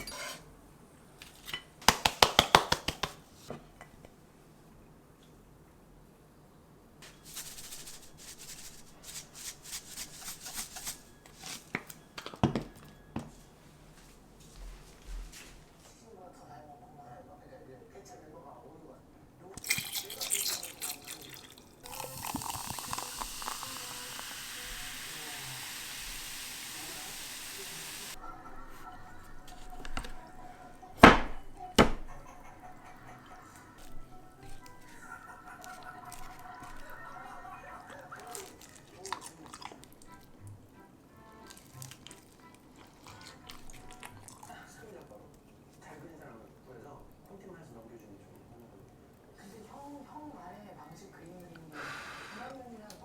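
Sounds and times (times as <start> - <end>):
utensil knocking on hard surface: 1.9 - 3.2
rustling and shaking: 7.1 - 11.7
food frying hiss: 19.7 - 28.2.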